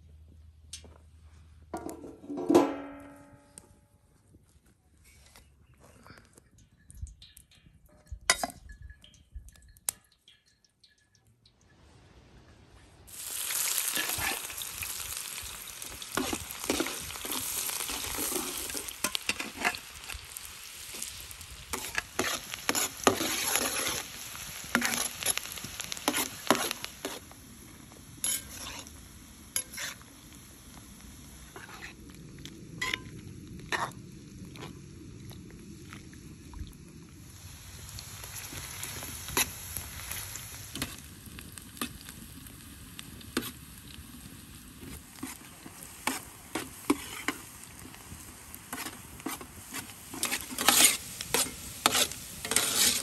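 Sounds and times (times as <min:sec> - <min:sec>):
food sizzling in a pan: 0:13.1 - 0:35.9, 0:37.1 - 0:53.0.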